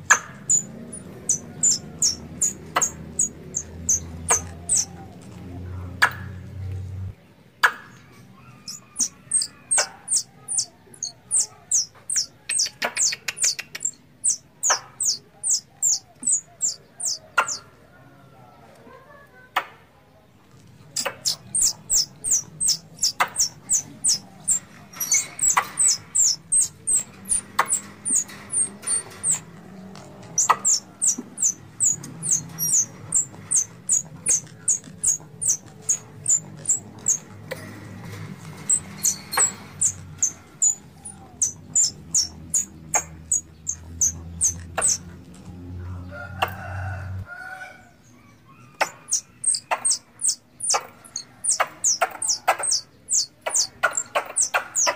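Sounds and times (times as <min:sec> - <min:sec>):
squirrel chirping: 0:00.0 - 0:05.1, 0:08.6 - 0:17.6, 0:21.0 - 0:29.5, 0:30.3 - 0:37.6, 0:38.6 - 0:45.1, 0:48.7 - 0:54.9.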